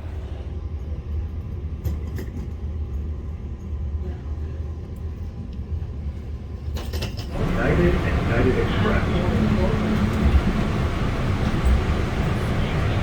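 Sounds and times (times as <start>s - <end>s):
train rumble in carriage: 0.0s - 13.0s.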